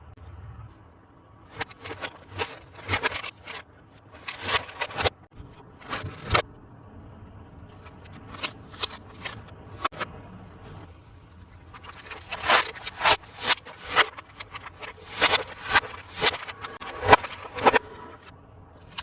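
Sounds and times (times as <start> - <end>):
plastic packaging scraping and crinkling: 1.5 - 6.4, 11.6 - 18.3.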